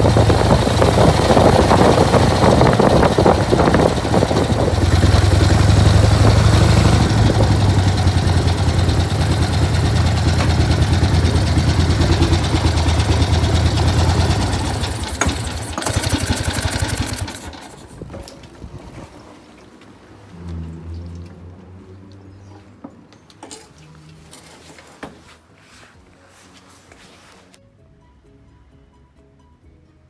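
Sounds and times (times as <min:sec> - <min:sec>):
motorcycle engine idling: 0:00.0 - 0:18.2.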